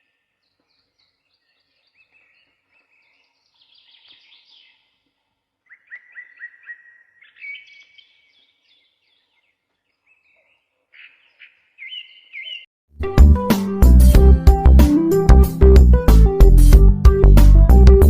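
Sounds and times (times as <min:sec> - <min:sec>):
small bird chirping: 0:00.0 - 0:05.0, 0:05.6 - 0:12.7
loud music: 0:13.0 - 0:18.0.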